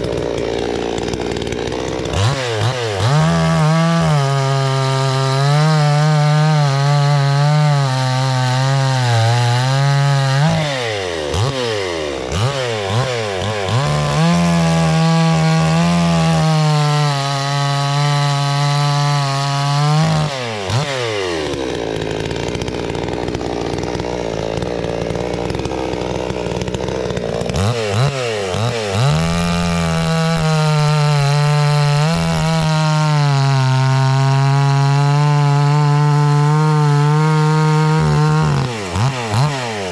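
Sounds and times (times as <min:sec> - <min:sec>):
chainsaw cutting wood: 0:00.0 - 0:39.9
chainsaw revving: 0:00.0 - 0:39.9.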